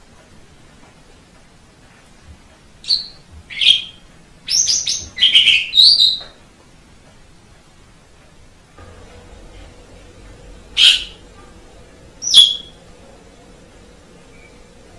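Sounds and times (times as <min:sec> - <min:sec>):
starling singing harsh notes: 0:08.8 - 0:14.9.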